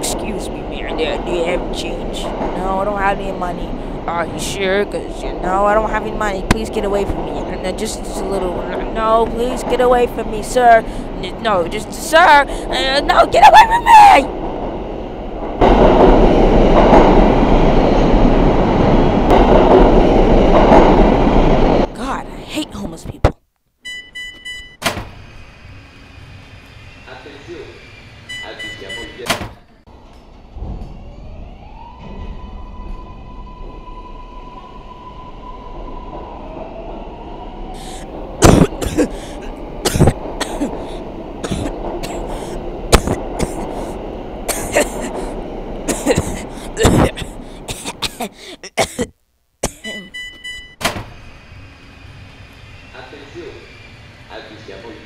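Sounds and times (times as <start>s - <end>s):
subway train wheels on track: 0.0s - 22.4s, 23.9s - 48.0s, 50.2s - 55.0s
person coughing hard: 38.4s - 43.9s, 44.5s - 45.3s, 45.9s - 50.0s.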